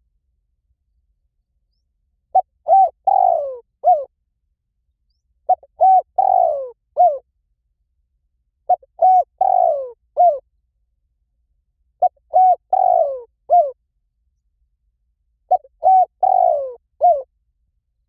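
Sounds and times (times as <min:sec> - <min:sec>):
dove cooing: 0:02.4 - 0:04.1, 0:05.5 - 0:07.2, 0:08.7 - 0:10.4, 0:12.0 - 0:13.8, 0:15.5 - 0:17.3.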